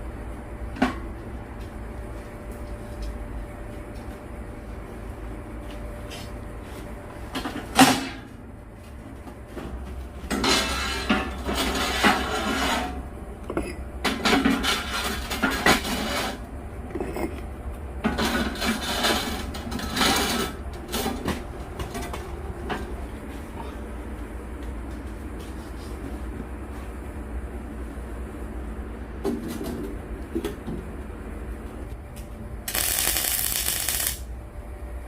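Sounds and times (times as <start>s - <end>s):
metal parts scraping and rattling: 10.3s - 17.4s, 18.0s - 21.3s, 32.7s - 34.2s.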